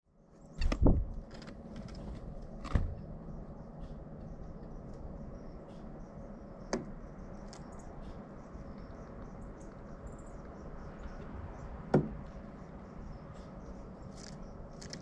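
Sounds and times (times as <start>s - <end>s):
woodpecker knocking on wood: 11.9s - 12.4s.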